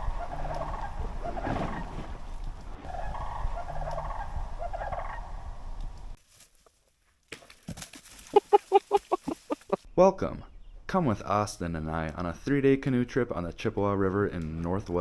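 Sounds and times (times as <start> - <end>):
wind rumble on microphone: 0.0 - 6.2.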